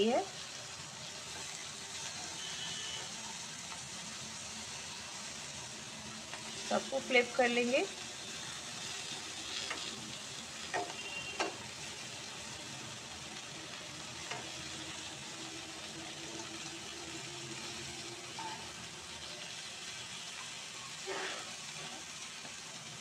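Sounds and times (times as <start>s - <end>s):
dumplings sizzling in a pan: 0.0s - 23.0s
metal tongs clicking on pan: 9.5s - 9.9s, 10.6s - 11.6s, 14.2s - 14.6s.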